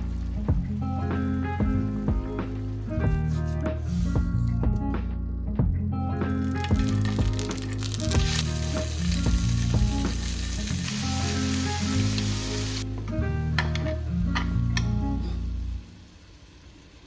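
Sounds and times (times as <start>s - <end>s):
background music with bass: 0.0s - 16.0s
food sizzling in a pan: 6.4s - 13.0s, 13.6s - 17.0s.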